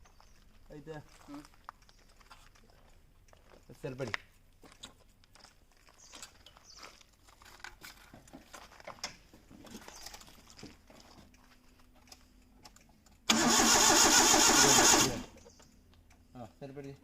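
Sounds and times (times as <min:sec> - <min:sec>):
faint clicking and handling: 0:00.0 - 0:13.3
starter motor cranking engine: 0:13.3 - 0:15.4.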